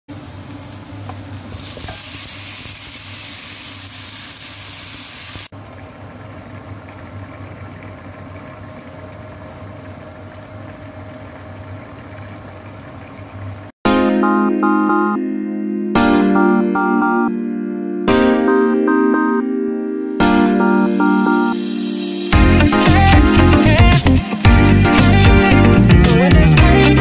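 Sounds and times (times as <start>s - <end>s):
chicken sizzling in hot oil: 0.1s - 10.0s
curry bubbling in a pan: 5.5s - 13.5s
low steady hum: 5.6s - 13.7s.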